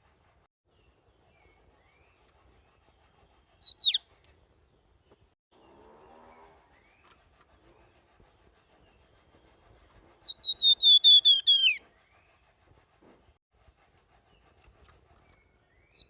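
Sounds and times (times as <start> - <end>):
songbird whistling: 3.6 - 4.0, 10.2 - 12.2, 15.7 - 16.0.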